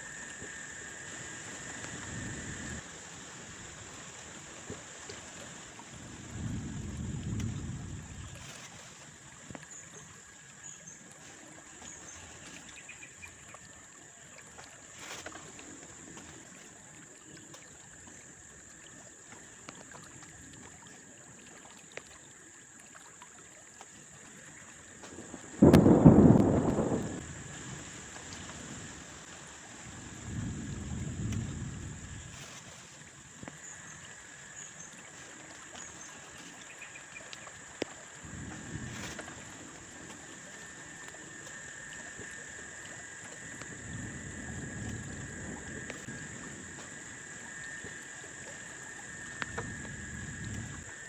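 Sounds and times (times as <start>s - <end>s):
steady rain: 24.9s - 32.6s, 38.1s - 51.0s
thunder rumbling: 25.2s - 27.7s
loud thunderclap: 25.6s - 27.3s.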